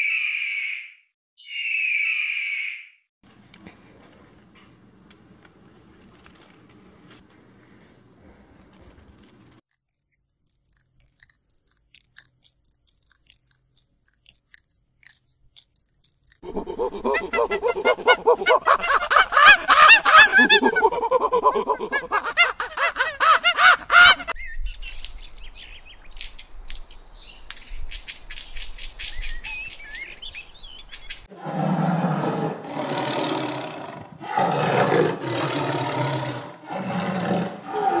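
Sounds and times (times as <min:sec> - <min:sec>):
squirrel clicking chatter: 0:10.4 - 0:17.8
monkey chattering: 0:16.4 - 0:22.2
lion roars: 0:31.3 - 0:38.0.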